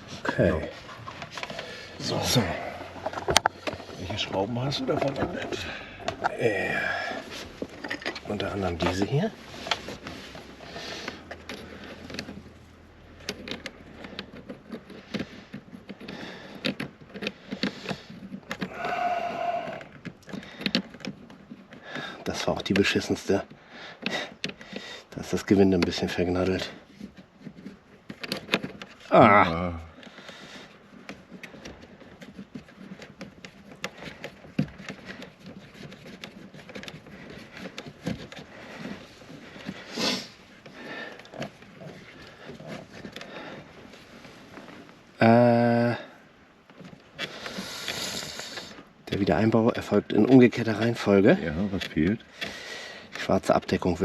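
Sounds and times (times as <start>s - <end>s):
clicks and light knocks: 0.0s - 6.4s.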